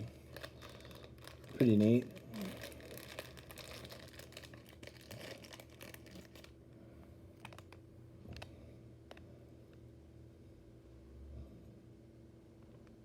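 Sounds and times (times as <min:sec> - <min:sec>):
plastic bag crinkling: 0:00.0 - 0:06.6, 0:07.4 - 0:08.5.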